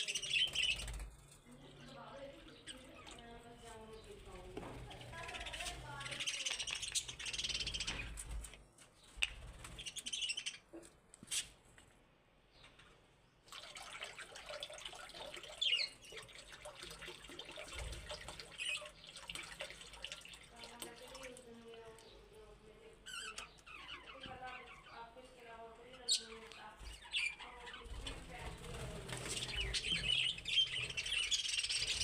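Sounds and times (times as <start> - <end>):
budgerigars chirping and chattering: 0.0 - 1.0, 1.6 - 8.2, 9.3 - 10.8, 15.6 - 16.3, 18.5 - 19.2, 23.0 - 32.0.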